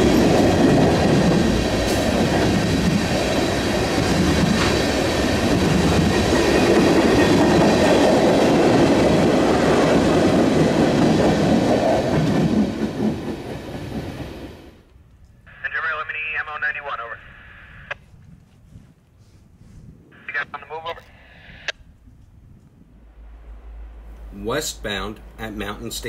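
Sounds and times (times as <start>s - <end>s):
train wheels rumbling on rails: 0.0s - 14.8s.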